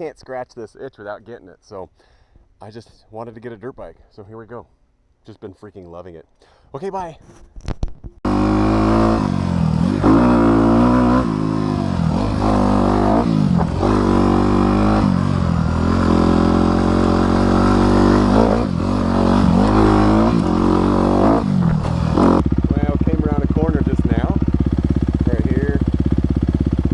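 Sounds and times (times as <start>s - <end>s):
dirt bike engine revving: 8.3s - 26.9s.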